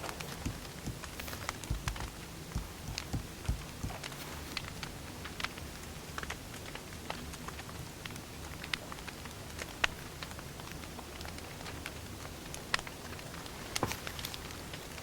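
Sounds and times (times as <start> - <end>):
fire hissing: 0.0 - 4.9
fire crackling and popping: 0.0 - 15.0.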